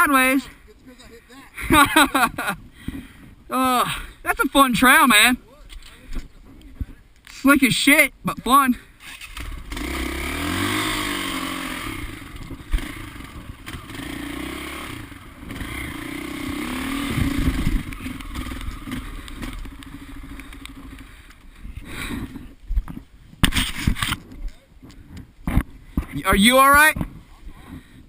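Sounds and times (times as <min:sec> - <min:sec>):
off-road vehicle engine revving: 0:09.0 - 0:21.2.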